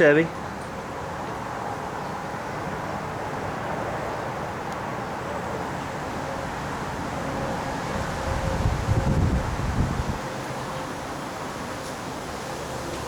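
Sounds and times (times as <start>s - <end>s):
low rumble of vehicle noise: 0.0s - 13.0s
wind buffeting microphone: 6.1s - 12.2s.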